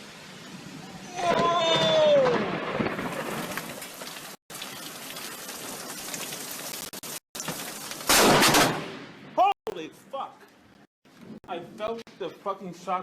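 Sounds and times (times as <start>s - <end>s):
steady rain: 0.0s - 8.2s
loud thunderclap: 1.1s - 3.8s.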